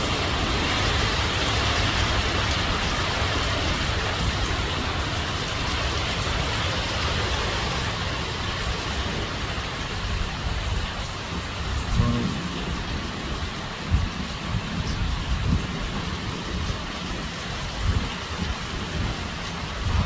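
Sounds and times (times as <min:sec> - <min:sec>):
heavy wind blowing: 0:00.0 - 0:20.0
wind buffeting microphone: 0:00.0 - 0:20.0.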